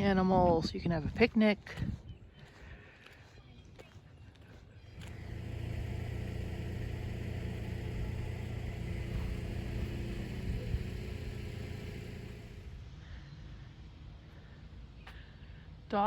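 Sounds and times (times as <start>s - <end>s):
car driving by: 4.9s - 12.8s.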